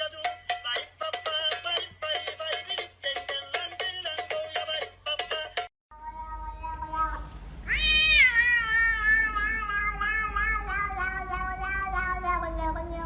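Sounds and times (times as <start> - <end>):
cat meowing: 6.1 - 13.0.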